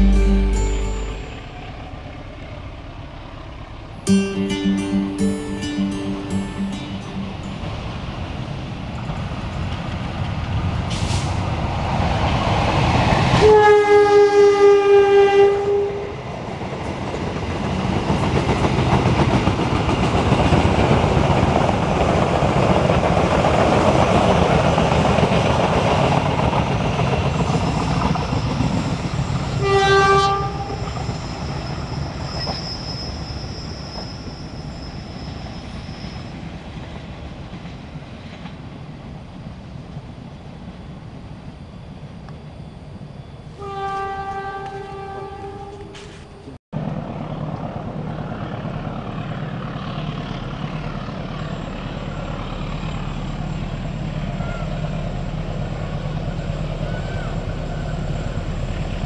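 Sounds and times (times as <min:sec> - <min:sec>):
train horn blasts: 0:00.0 - 0:01.7, 0:13.4 - 0:16.2, 0:29.5 - 0:31.1, 0:43.6 - 0:46.1
train wheels rolling: 0:16.2 - 0:40.6.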